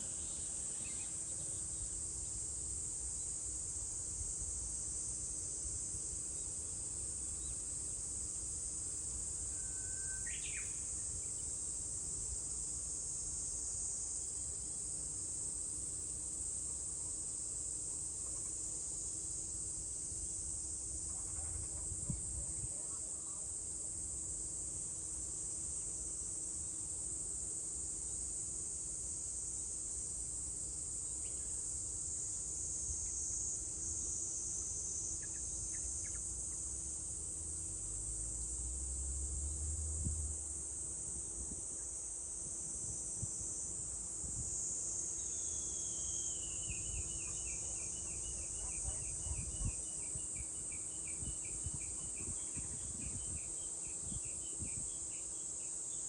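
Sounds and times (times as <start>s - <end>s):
cicadas shrilling: 0.0s - 4.4s, 6.1s - 56.0s.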